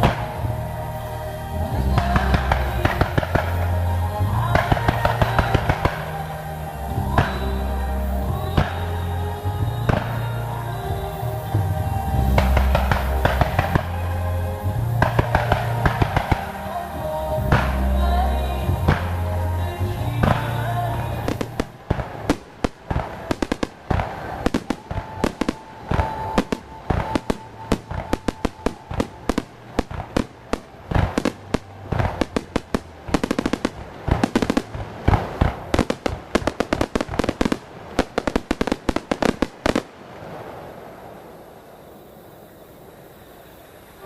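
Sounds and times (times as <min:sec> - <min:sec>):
background music: 0:00.0 - 0:37.5
fireworks bangs: 0:00.0 - 0:44.0.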